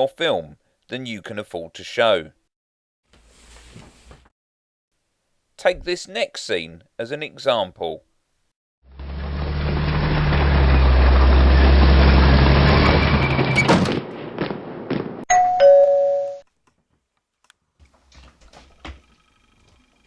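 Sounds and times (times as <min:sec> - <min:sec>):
two-tone doorbell chime: 0:15.3 - 0:16.4.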